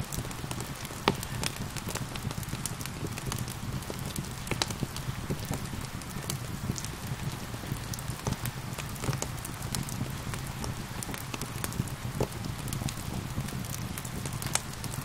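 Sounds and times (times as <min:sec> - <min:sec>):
gentle rain: 0:00.0 - 0:15.0
wood fire crackling and popping: 0:00.0 - 0:15.0.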